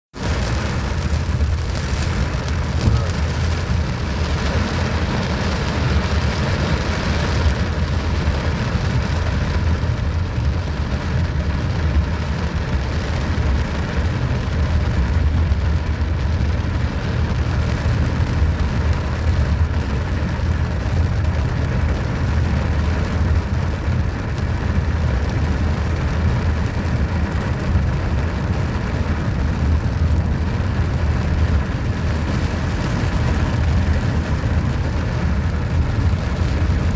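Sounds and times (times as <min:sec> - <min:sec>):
heavy low rumble: 0:00.2 - 0:19.8
steady rain falling: 0:00.2 - 0:36.9.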